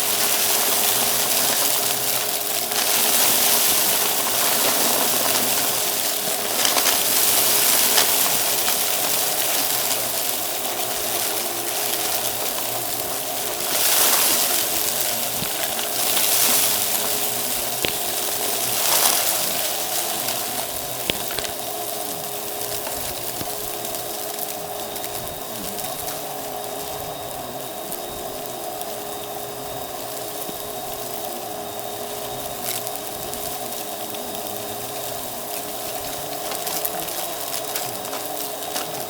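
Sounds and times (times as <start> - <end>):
debris clicking and crackling: 0.0 - 27.1, 32.0 - 39.0
vacuum cleaner running: 0.0 - 39.0.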